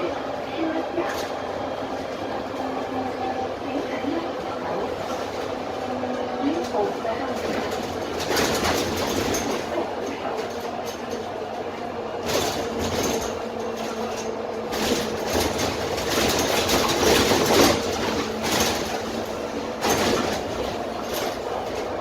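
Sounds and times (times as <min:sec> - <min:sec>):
bus diesel engine humming: 0:00.0 - 0:22.0
road noise: 0:00.0 - 0:22.0
body rattles: 0:06.6 - 0:11.3, 0:12.2 - 0:21.8.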